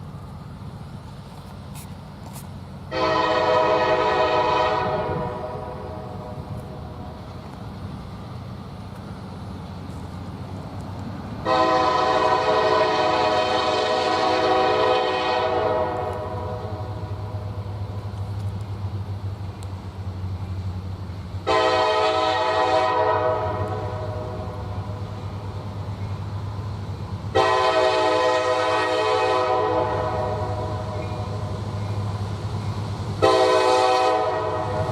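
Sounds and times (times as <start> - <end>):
low engine rumble: 0.0 - 34.9
locomotive horn blasts: 2.9 - 6.1, 11.4 - 16.9, 21.4 - 24.6, 27.3 - 31.3, 33.2 - 34.9.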